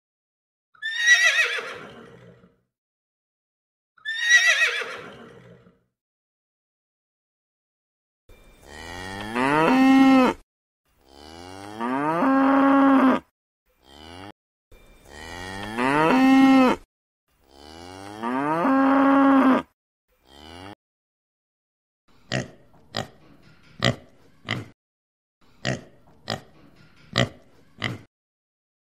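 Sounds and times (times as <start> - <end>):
cow mooing: 8.6 - 10.4, 11.0 - 14.3, 15.1 - 16.8, 17.5 - 20.8
pig grunting: 22.3 - 24.8, 25.6 - 28.1.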